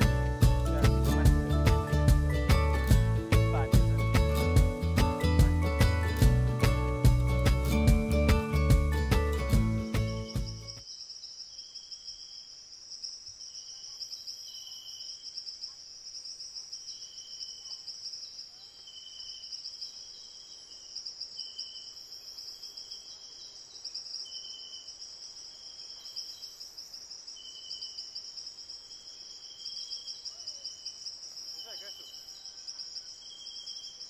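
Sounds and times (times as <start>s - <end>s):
pulsing insect calls: 8.2s - 34.0s.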